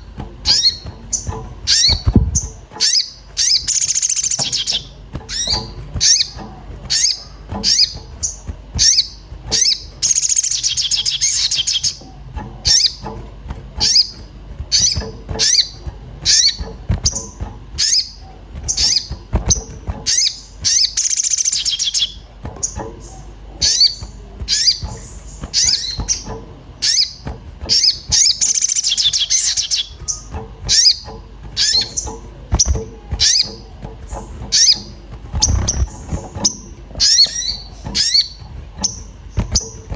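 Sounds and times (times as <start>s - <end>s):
rapid bird twittering: 0.0s - 39.9s
sunbird sharp chirps: 17.8s - 22.2s, 26.8s - 31.0s.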